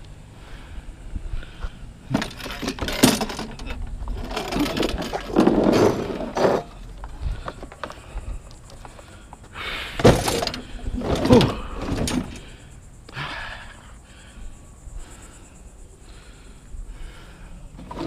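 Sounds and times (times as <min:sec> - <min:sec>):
scrap metal clattering: 0:02.1 - 0:06.9, 0:10.0 - 0:12.5.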